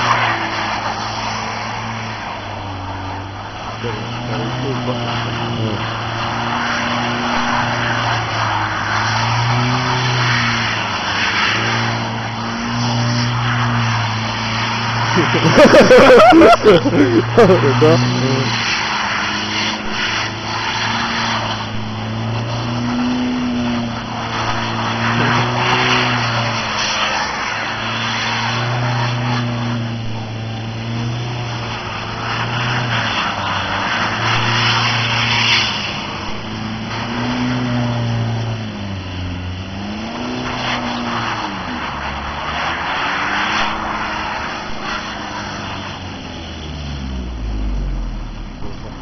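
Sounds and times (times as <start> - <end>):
car engine revving: 0.0 - 49.0
tyres churning snow: 0.0 - 49.0.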